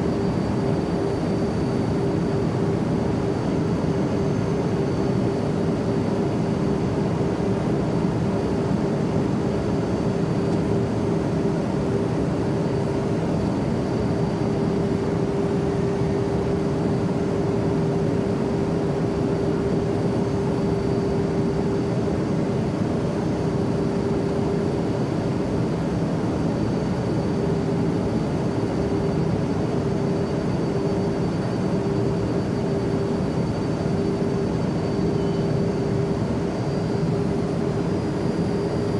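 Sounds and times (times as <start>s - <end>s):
airplane engine rush and hum: 0.0s - 38.9s.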